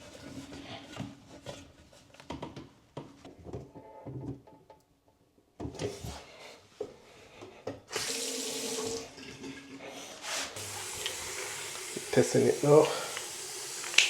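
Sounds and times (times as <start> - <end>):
water running into sink: 7.9 - 14.0.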